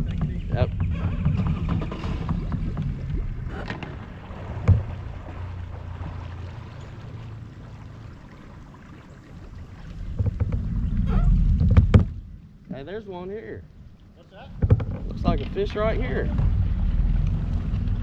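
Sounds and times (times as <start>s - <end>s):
boat rumbling on water: 0.0s - 18.0s.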